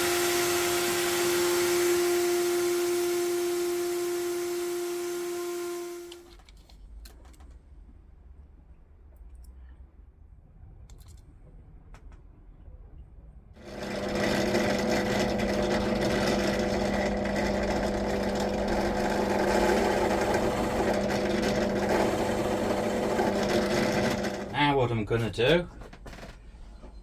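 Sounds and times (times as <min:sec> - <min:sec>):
workshop machine motor hum: 0:00.0 - 0:06.3, 0:13.6 - 0:24.6.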